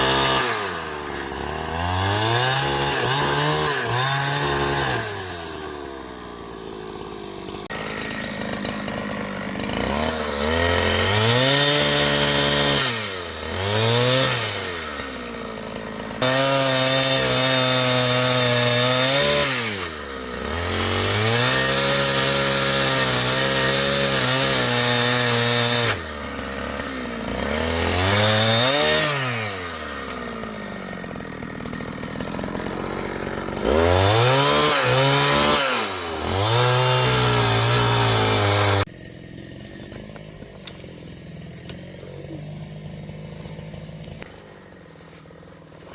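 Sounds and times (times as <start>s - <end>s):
chainsaw revving while cutting wood: 0.0s - 45.9s.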